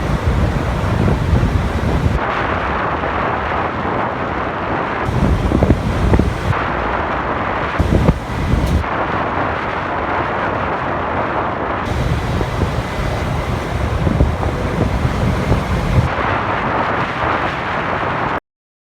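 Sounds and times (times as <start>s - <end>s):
motorcycle engine and road rumble: 0.0s - 2.2s, 5.1s - 6.6s, 7.8s - 8.9s, 11.9s - 16.5s
wind buffeting microphone: 0.0s - 18.4s.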